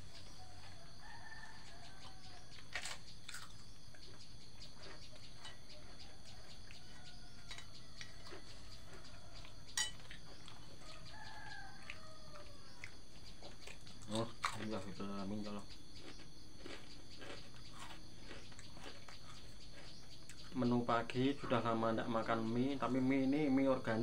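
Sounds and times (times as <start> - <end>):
roosters crowing: 0.0 - 3.5, 4.8 - 13.6
insects chirring: 0.0 - 24.0.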